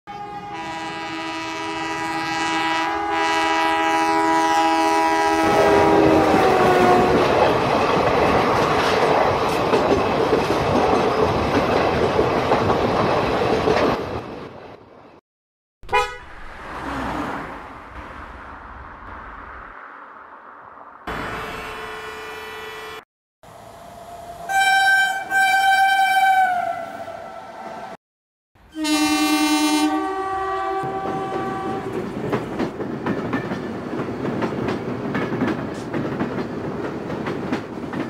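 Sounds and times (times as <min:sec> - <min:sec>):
train horn chord: 0:00.1 - 0:07.2, 0:15.9 - 0:16.4, 0:21.1 - 0:23.0, 0:24.4 - 0:26.8, 0:28.7 - 0:32.0
passing train rumble and clatter: 0:00.2 - 0:15.2, 0:16.2 - 0:21.8, 0:28.8 - 0:38.0.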